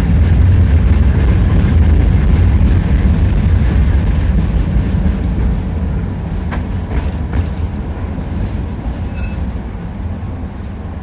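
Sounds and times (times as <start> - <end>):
tram wheels rumbling: 0.0 - 11.0
wheels clacking over rail joints: 0.1 - 9.7
high-pitched wheel squeal: 9.1 - 9.5.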